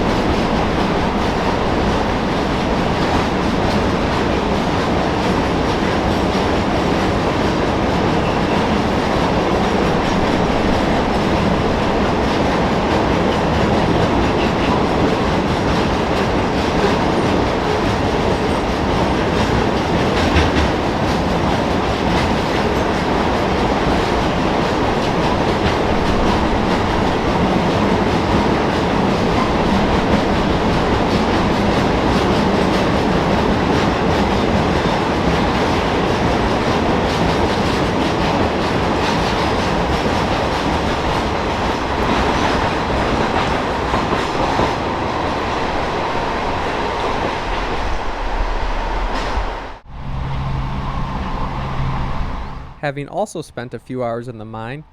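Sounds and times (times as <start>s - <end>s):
train wheels clattering over rails: 0.0s - 49.9s
train car clank: 8.1s - 44.8s.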